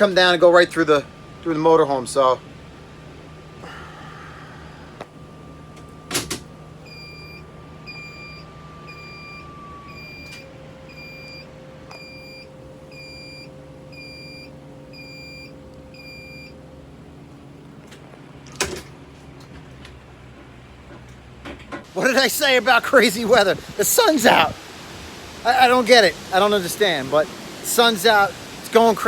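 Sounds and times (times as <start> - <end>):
low steady hum: 0.0 - 29.0
dashboard warning chime beeping: 5.1 - 16.7.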